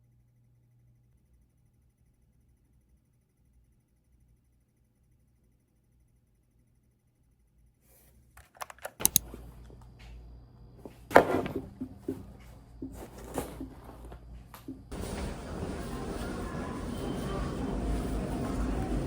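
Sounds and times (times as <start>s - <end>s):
sharp clicks: 8.4s - 9.3s
knocks and handling noises: 10.8s - 15.5s.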